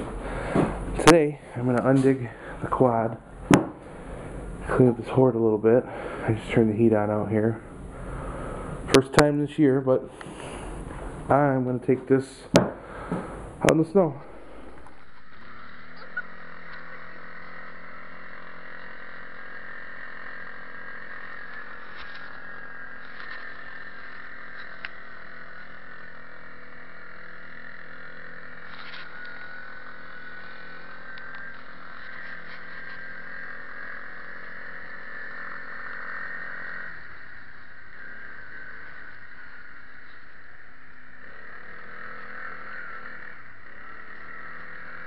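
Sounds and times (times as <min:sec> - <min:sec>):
atv engine idling: 0:12.7 - 0:40.3.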